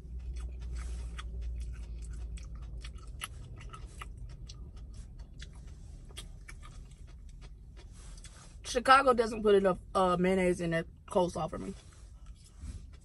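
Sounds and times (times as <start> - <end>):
person chewing crunchy food: 0.0 - 8.6, 11.7 - 13.0.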